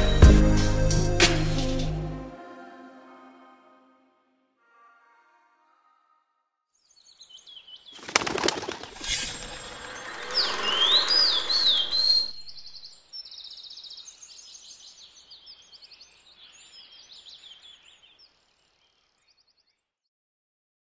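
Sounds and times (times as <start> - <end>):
bird whistling and trilling: 8.2 - 13.0
rushing noise: 8.9 - 12.9.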